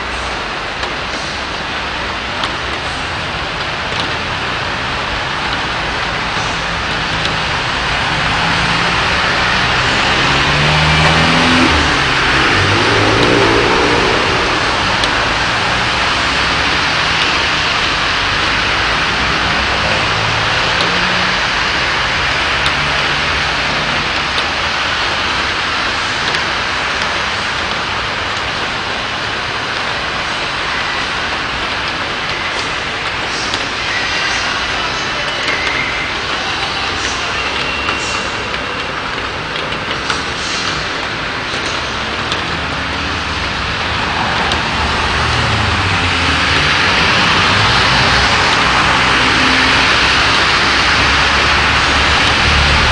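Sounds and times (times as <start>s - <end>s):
heavy rain pouring: 0.0s - 52.9s
faint vehicle engine hum: 6.4s - 24.5s.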